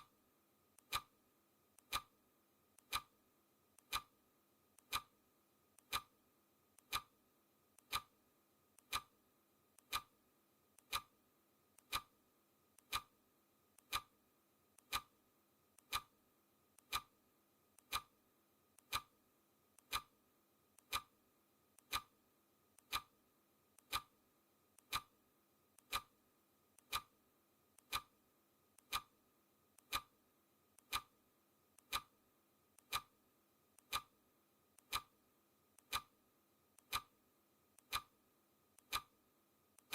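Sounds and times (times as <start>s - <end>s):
clock ticking: 0.8s - 1.2s, 1.8s - 2.2s, 2.8s - 3.2s, 3.8s - 4.2s, 4.8s - 5.2s, 5.8s - 6.2s, 6.8s - 7.2s, 7.8s - 8.2s, 8.8s - 9.2s, 9.8s - 10.1s, 10.8s - 11.2s, 11.8s - 12.2s, 12.8s - 13.2s, 13.8s - 14.2s, 14.8s - 15.2s, 15.8s - 16.2s, 16.8s - 17.2s, 17.8s - 18.2s, 18.8s - 19.2s, 19.8s - 20.2s, 20.8s - 21.2s, 21.8s - 22.2s, 22.8s - 23.2s, 23.8s - 24.2s, 24.8s - 25.2s, 25.8s - 26.2s, 26.8s - 27.2s, 27.8s - 28.2s, 28.8s - 29.2s, 29.8s - 30.2s, 30.8s - 31.2s, 31.8s - 32.2s, 32.8s - 33.2s, 33.8s - 34.2s, 34.8s - 35.2s, 35.8s - 36.2s, 36.8s - 37.2s, 37.8s - 38.2s, 38.8s - 39.2s.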